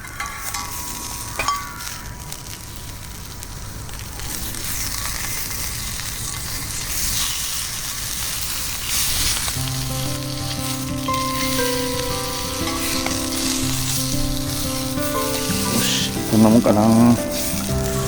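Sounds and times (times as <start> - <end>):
food sizzling in frying pan: 0.0 - 18.0
background music: 9.6 - 18.0.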